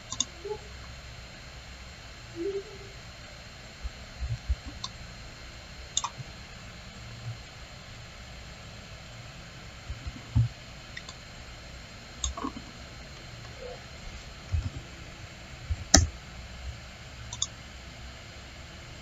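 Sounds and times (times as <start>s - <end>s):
steady background hiss: 0.0s - 19.0s
computer mouse clicks: 0.1s - 0.3s, 6.0s - 6.2s, 15.7s - 16.1s, 17.3s - 17.6s.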